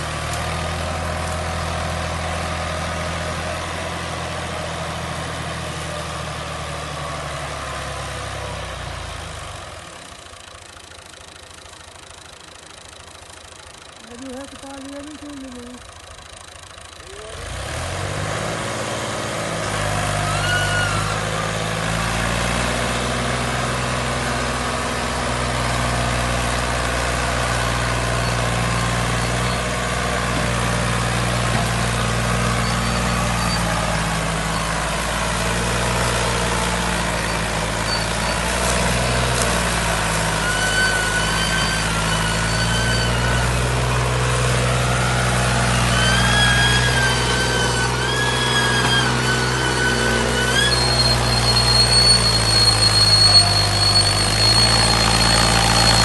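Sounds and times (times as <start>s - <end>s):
heavy farm vehicle engine: 0.0s - 56.0s
high whistling tones: 45.8s - 56.0s.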